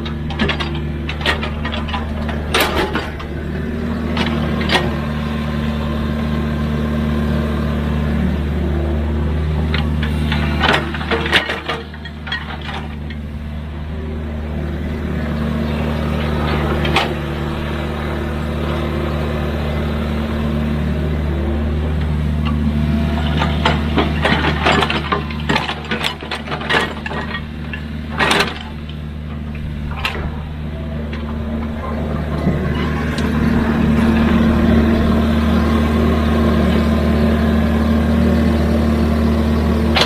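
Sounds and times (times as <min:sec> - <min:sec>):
sharp metal knocks and clanks: 0:00.0 - 0:03.4, 0:23.2 - 0:30.5
diesel engine running: 0:00.0 - 0:40.0.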